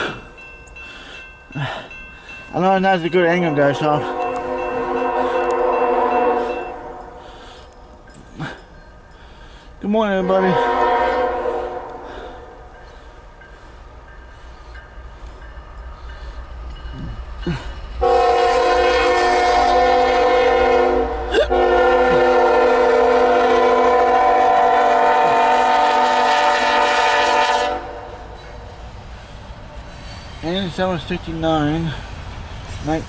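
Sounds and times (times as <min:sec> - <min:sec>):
locomotive rumble: 0:00.0 - 0:33.0
train air horn: 0:03.7 - 0:07.4, 0:10.1 - 0:12.6, 0:18.0 - 0:28.5.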